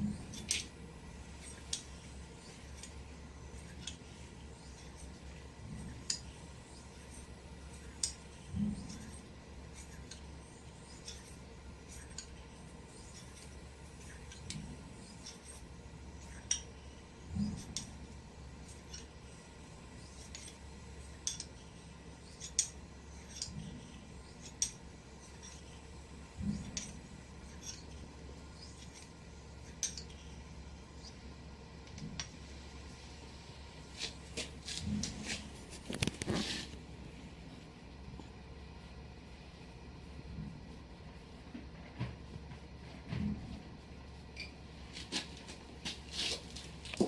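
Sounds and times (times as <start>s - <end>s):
razor blade strokes ticking: 1.4s - 4.0s.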